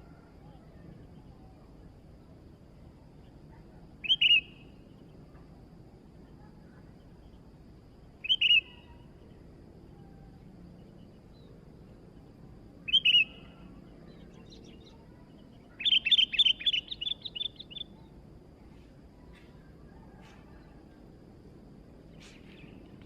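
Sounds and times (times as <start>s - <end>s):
bulbul chirping: 8.2s - 9.0s, 12.9s - 13.5s, 15.8s - 18.0s.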